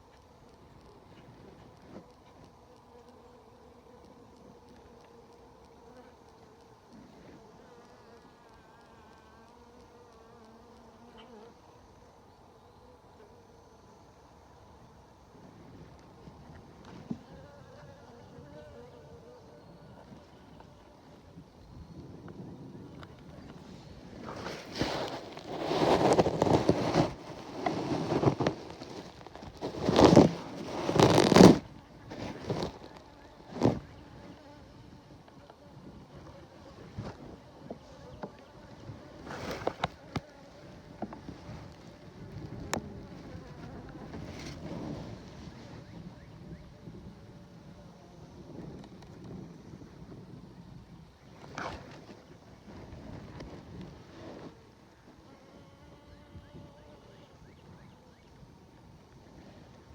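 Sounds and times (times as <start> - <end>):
honey bees buzzing: 23.3 - 44.6
loud rustles: 24.2 - 33.8.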